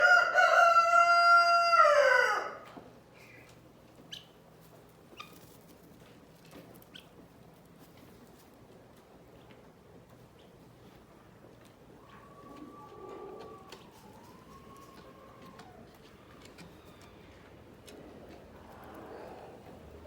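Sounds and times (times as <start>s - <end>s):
rooster crowing: 0.0s - 2.6s
faint chicken calls: 0.0s - 4.5s, 11.8s - 20.0s.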